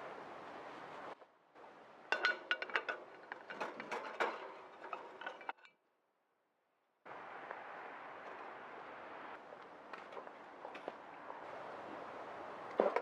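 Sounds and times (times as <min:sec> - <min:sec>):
metal cooking gear clinking: 0:02.1 - 0:05.7.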